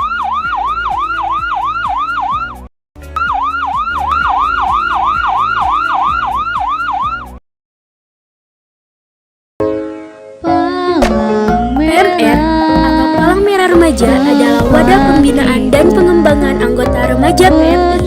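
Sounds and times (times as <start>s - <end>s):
ambulance siren yelping: 0.0s - 7.4s.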